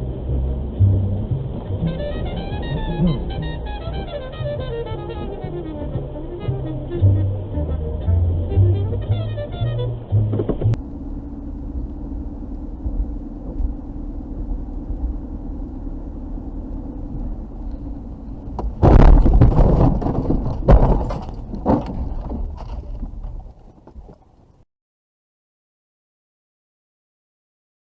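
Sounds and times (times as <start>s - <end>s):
car engine and road noise: 0.0s - 24.6s
vehicle collision crash: 17.8s - 23.5s
sharp impact knocks: 18.5s - 23.1s.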